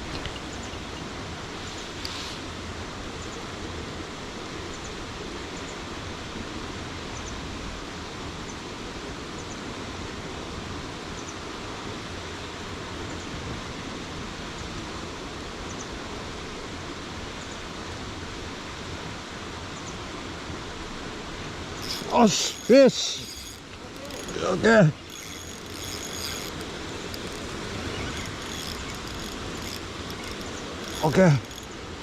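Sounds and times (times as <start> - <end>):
faint high double ticks: 21.8 - 24.4, 25.0 - 31.8
stream water rushing: 21.8 - 32.0.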